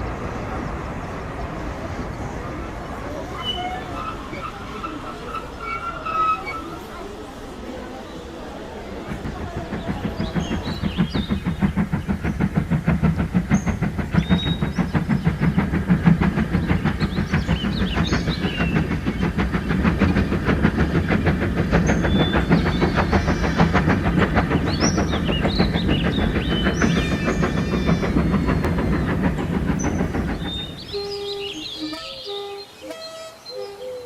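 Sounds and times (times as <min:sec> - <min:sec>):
railway locomotive running: 0:00.0 - 0:34.0
short high squeals: 0:03.3 - 0:07.0.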